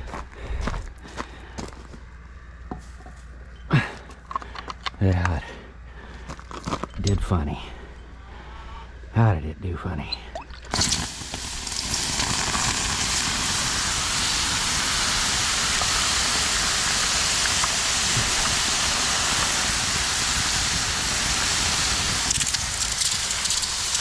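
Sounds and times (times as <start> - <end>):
hot metal sizzling in water: 10.7 - 24.0.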